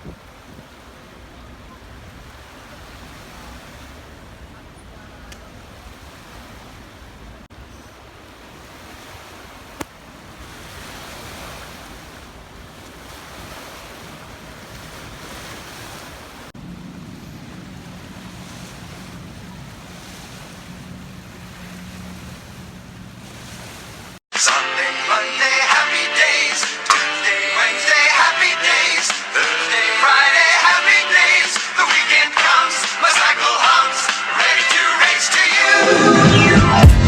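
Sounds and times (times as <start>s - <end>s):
water washing: 0.0s - 24.2s
wind buffeting microphone: 0.0s - 24.2s.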